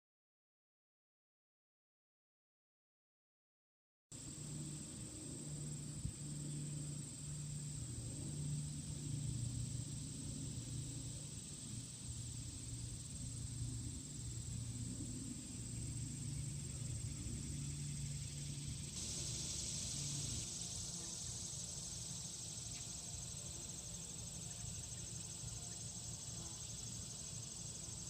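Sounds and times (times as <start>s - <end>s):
insects trilling: 4.2s - 28.0s.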